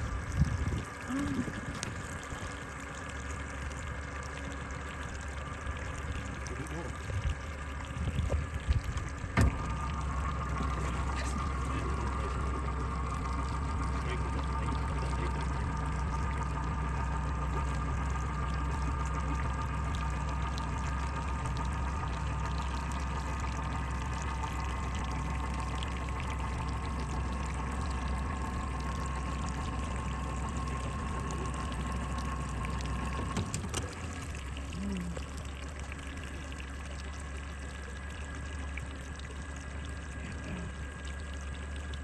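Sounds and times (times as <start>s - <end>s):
steady low hum: 0.0s - 42.0s
water sloshing and trickling: 0.0s - 42.0s.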